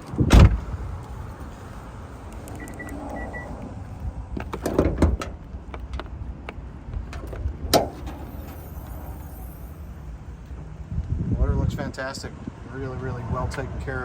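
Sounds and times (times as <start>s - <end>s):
faint high beeps: 2.6s - 3.6s
car hood clicks and knocks: 4.4s - 6.1s.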